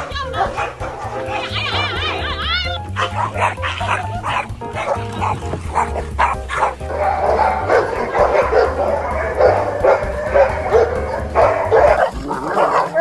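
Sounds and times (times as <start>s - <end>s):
dogs barking and yipping: 0.0s - 13.0s.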